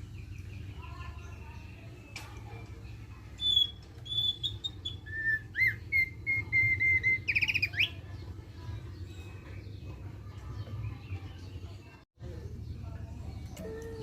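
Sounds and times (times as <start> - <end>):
bird whistled notes and trill: 3.4 - 8.1.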